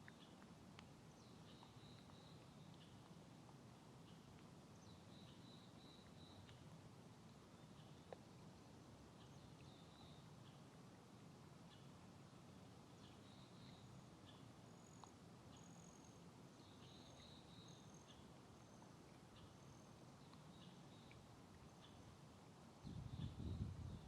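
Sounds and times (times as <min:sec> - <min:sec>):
rain on a pond: 0:00.0 - 0:22.8
low buffeting noise: 0:21.0 - 0:24.0.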